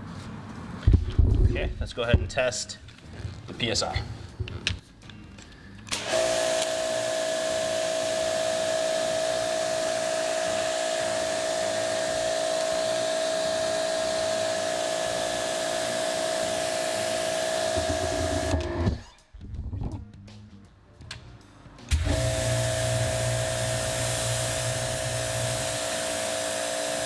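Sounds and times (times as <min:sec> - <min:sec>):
pressure washer motor whine: 0:05.9 - 0:19.0, 0:21.9 - 0:27.0
water spray hissing: 0:21.9 - 0:27.0.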